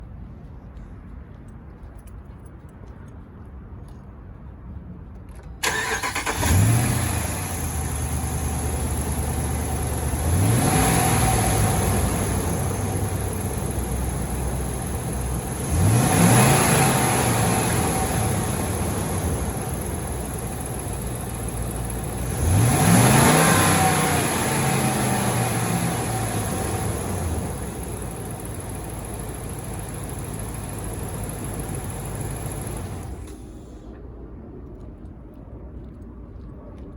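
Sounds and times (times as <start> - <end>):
pickup engine starting and revving: 5.6 - 33.8.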